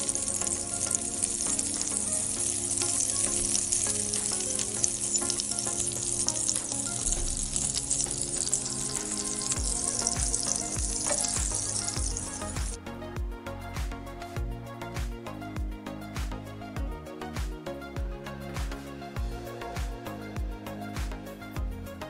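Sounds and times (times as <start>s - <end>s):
chilli frying in oil: 0.0s - 12.8s
soft background music: 0.0s - 22.0s.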